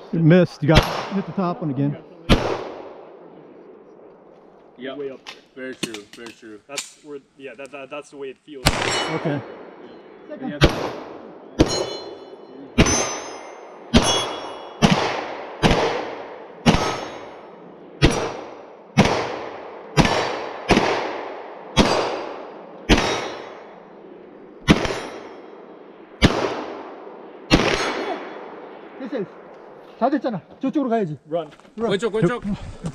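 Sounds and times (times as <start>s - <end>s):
gunshots: 0.0s - 3.3s, 8.6s - 29.9s
high ring of steel targets: 8.6s - 15.8s, 16.6s - 18.4s, 21.8s - 23.8s, 24.6s - 26.6s, 27.5s - 28.6s.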